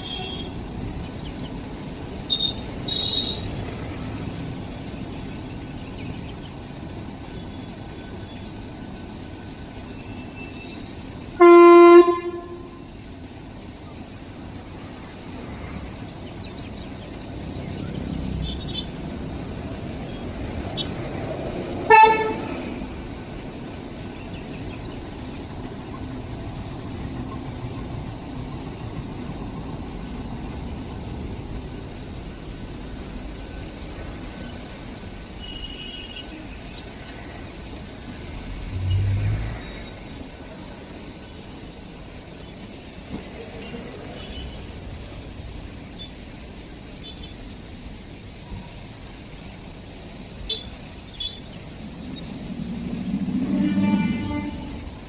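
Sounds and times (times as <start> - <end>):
train rumbling: 0.0 - 55.0
low hum: 51.7 - 55.0.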